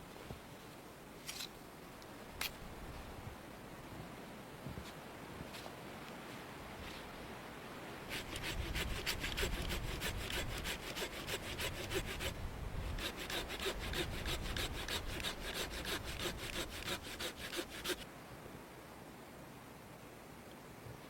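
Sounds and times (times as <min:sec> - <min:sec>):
hand saw cutting wood: 0:08.1 - 0:18.0.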